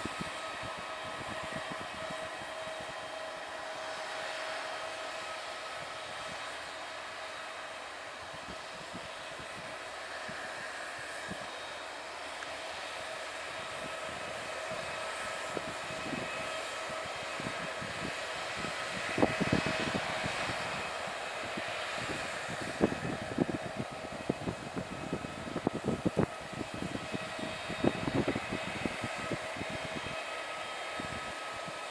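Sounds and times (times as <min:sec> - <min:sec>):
distant aircraft engine whine: 0:00.0 - 0:31.9.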